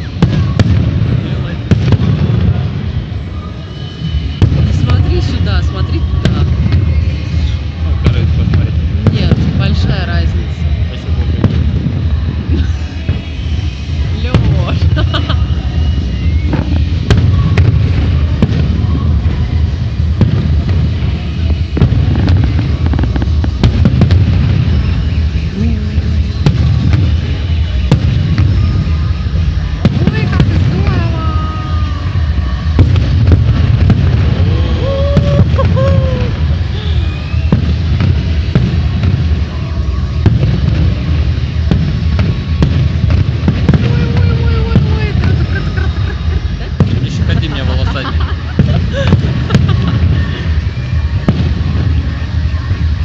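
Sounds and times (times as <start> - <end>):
fireworks bangs and pops: 0.0 - 53.0
low rumble: 0.0 - 53.0
fireworks shells bursting rumble: 11.2 - 31.4.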